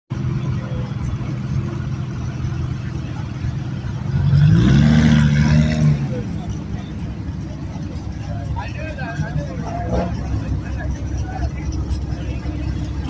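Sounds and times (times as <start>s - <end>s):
car engine idling and revving: 0.1s - 13.0s.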